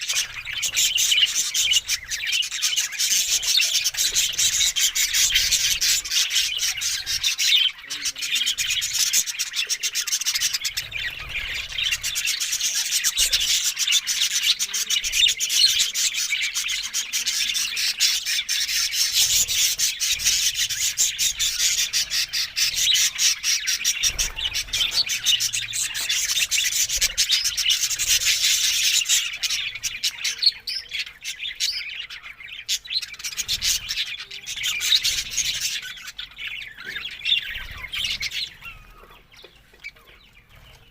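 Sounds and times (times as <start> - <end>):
budgerigars chattering and chirping: 0.0 - 40.9.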